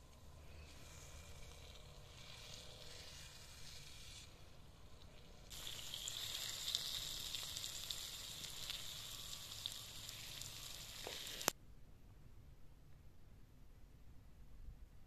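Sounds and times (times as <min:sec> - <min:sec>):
food sizzling in oil with pops: 0:01.4 - 0:11.5.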